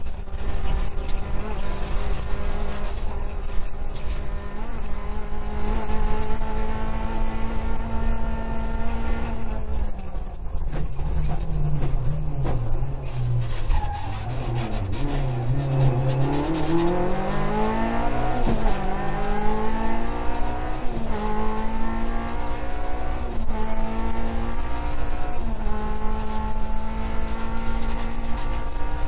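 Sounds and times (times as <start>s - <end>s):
rally car engine accelerating: 0.0s - 29.0s.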